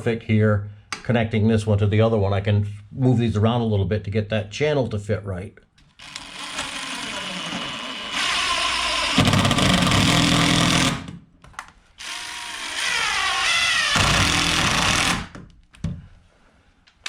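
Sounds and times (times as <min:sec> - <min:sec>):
cordless drill driving screws: 0:06.0 - 0:11.1, 0:12.0 - 0:15.4.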